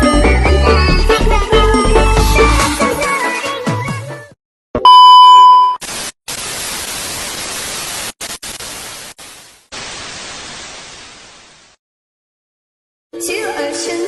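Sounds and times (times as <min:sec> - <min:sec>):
electronic beep: 0:04.8 - 0:05.8
static-like hissing noise: 0:05.8 - 0:11.8.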